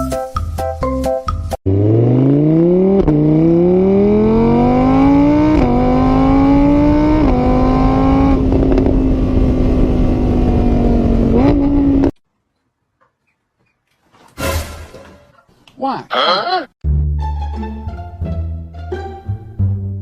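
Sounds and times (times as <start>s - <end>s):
engine revving through gears: 1.7s - 12.2s.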